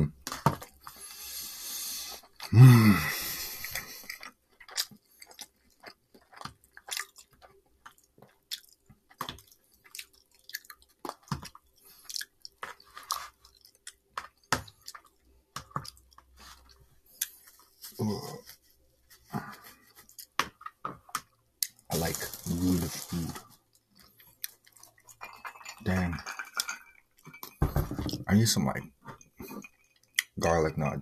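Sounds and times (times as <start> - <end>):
chewing and wet mouth sounds: 3.2 - 17.9, 19.1 - 27.4, 29.2 - 30.4.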